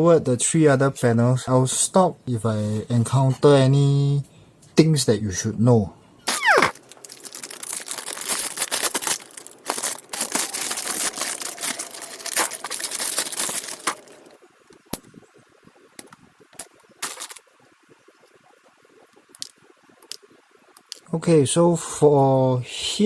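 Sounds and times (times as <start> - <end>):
plastic parts clicking: 6.3 - 15.1, 16.0 - 17.5.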